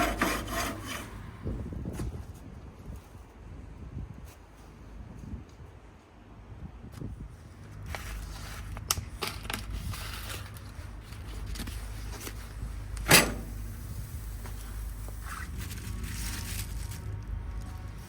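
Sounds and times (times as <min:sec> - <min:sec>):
low steady rumble: 0:06.3 - 0:18.0.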